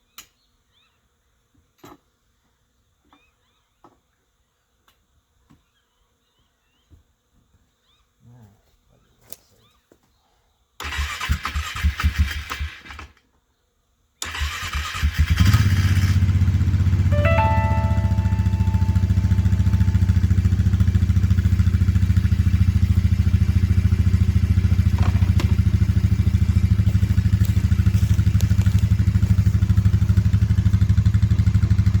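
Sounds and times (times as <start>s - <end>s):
small engine running: 15.0s - 32.0s
brief high tone: 16.4s - 21.3s.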